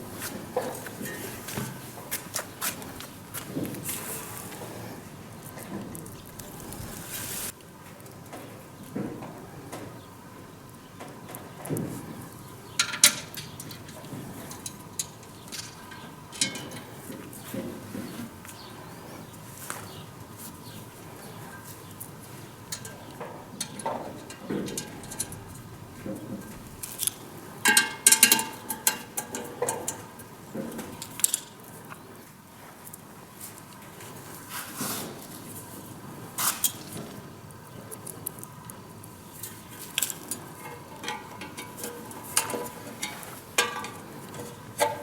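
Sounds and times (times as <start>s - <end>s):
metal parts clinking and clanking: 12.8s - 17.2s, 22.7s - 30.1s, 39.9s - 45.0s
ringing metallic clanks: 14.5s - 17.0s, 40.3s - 45.0s.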